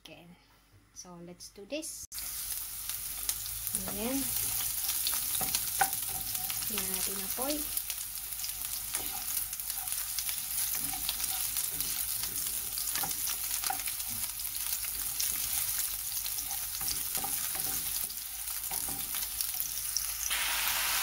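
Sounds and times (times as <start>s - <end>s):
onion sizzling in hot oil: 2.1s - 21.0s
wooden spatula scraping a pan: 3.8s - 19.6s.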